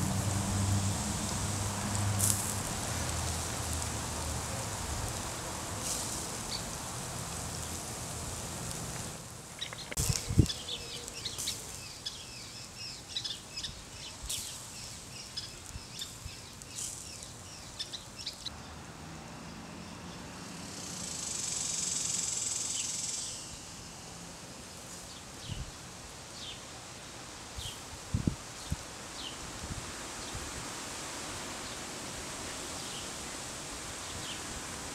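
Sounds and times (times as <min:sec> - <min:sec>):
high hiss: 0:00.0 - 0:18.6, 0:20.2 - 0:34.9
steady hiss: 0:00.0 - 0:18.6, 0:20.4 - 0:34.9
small birds chirping: 0:05.8 - 0:07.8, 0:09.0 - 0:18.6.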